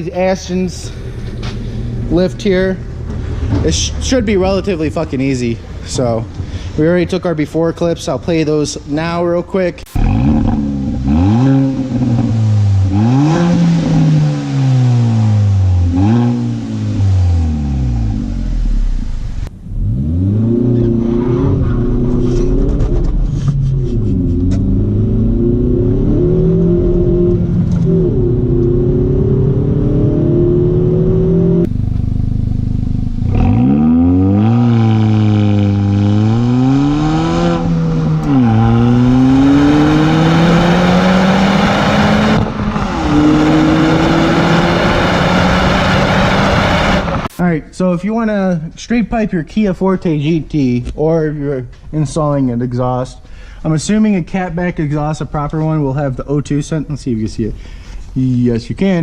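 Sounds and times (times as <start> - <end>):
car engine revving: 9.9 - 47.4.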